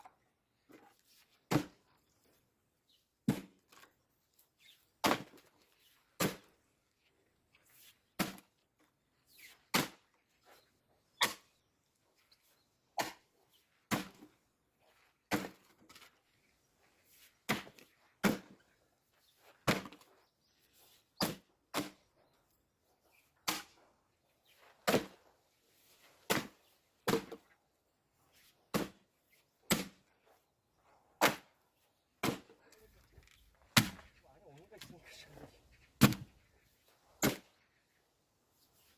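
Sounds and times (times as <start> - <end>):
firewood logs knocking: 32.2 - 34.2, 36.0 - 36.4.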